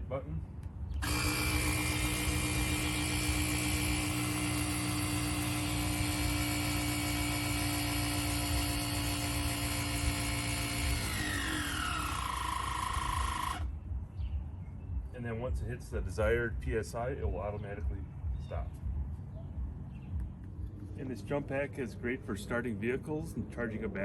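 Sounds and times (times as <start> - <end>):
small air compressor humming: 1.0 - 13.7.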